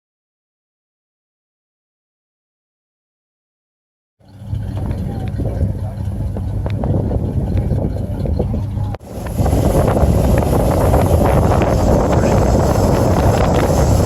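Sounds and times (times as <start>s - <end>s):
faint voices: 4.3s - 14.0s
wind buffeting microphone: 4.3s - 14.0s
hiss: 9.0s - 14.0s.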